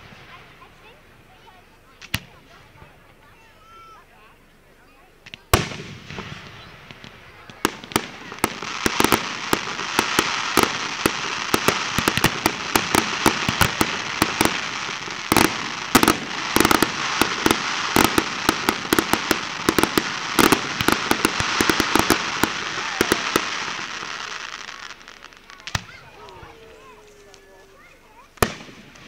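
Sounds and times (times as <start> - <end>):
fireworks bangs: 0.0 - 3.4, 5.2 - 29.0
fireworks crackling: 0.0 - 4.5, 5.1 - 29.0
fireworks hiss: 5.4 - 26.5.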